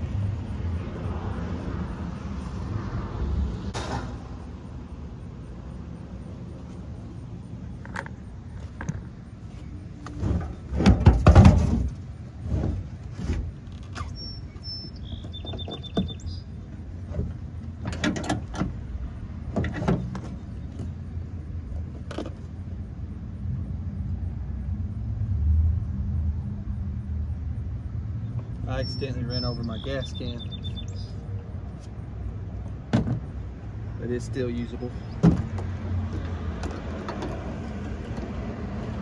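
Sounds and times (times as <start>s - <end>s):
knocks and clatter: 10.2s - 13.5s.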